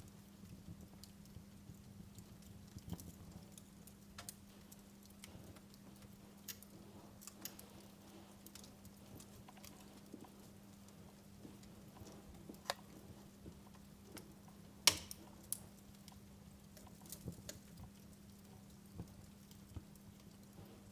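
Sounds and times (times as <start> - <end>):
low steady hum: 0.0 - 20.9
wood fire crackling: 0.0 - 20.9
sharp pops of fire: 14.1 - 15.8.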